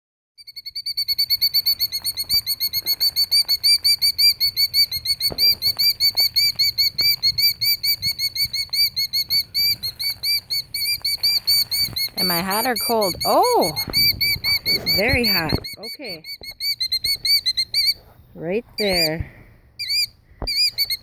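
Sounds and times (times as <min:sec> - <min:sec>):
bird alarm call: 0:00.4 - 0:21.0.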